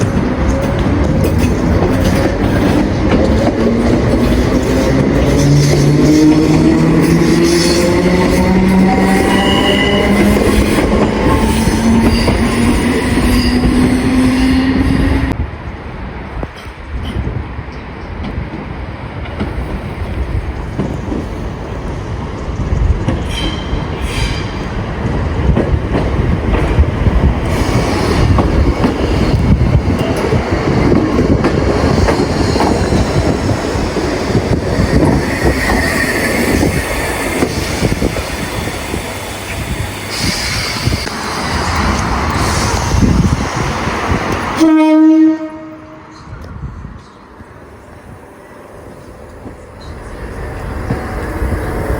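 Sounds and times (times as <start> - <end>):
train wheels rushing on rail: 0.0 - 51.9
train horn blast: 44.6 - 46.1.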